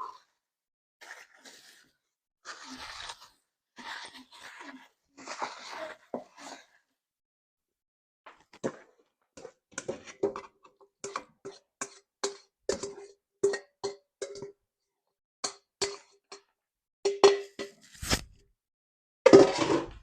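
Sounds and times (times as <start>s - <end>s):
utensil clacking in metal pot: 9.4s - 14.6s, 15.4s - 16.5s.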